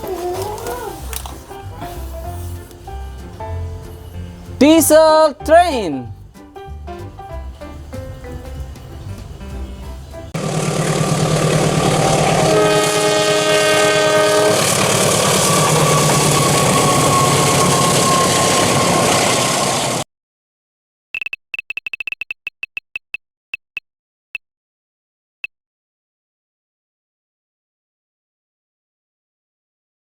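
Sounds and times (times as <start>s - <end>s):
diesel train running: 1.1s - 20.0s
train horn blast: 10.4s - 19.3s.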